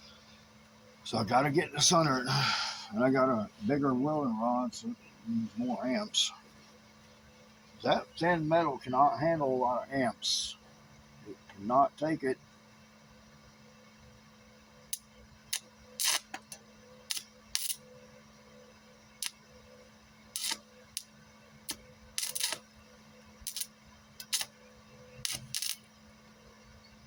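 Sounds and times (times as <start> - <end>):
steady low hum: 0.0 - 27.0
welding arc crackling: 14.9 - 17.9, 19.2 - 19.4, 20.3 - 25.9.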